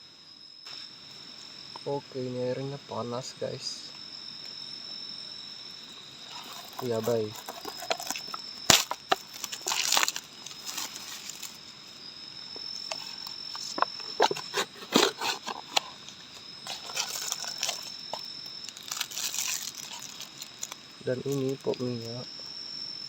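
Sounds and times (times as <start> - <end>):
crickets trilling: 0.0 - 23.0
packaging crinkling and rustling: 6.3 - 11.6, 12.9 - 15.9, 16.6 - 21.6.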